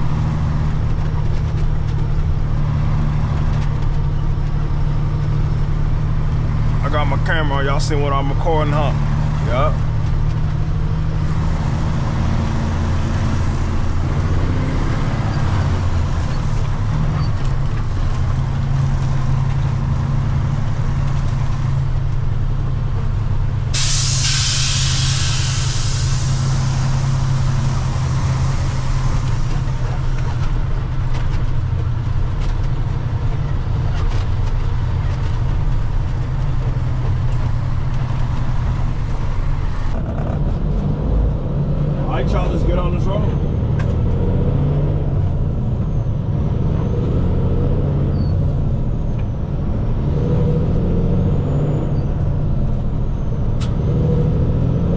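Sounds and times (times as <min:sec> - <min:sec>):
diesel engine running: 0:00.0 - 0:54.9
loud hiss of air: 0:23.7 - 0:30.4.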